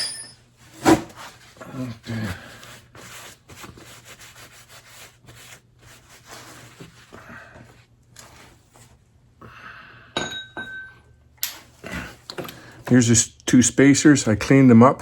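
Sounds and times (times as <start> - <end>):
metallic clinks: 0.0 - 0.4, 10.2 - 11.6
rubbing and handling metal parts: 0.0 - 1.5.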